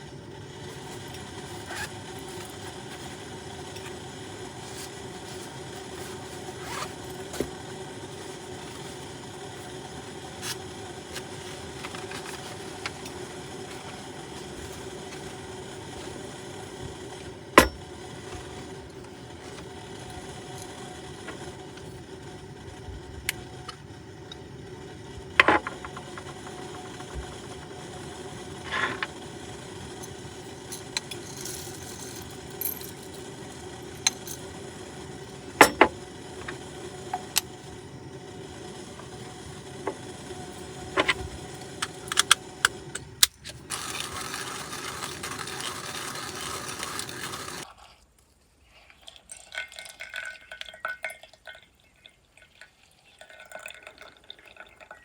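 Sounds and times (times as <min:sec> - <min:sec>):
steady cooking hiss: 0:00.0 - 0:47.7
clatter and handling sounds: 0:10.4 - 0:15.3, 0:25.4 - 0:27.5, 0:30.0 - 0:34.5, 0:40.8 - 0:47.6.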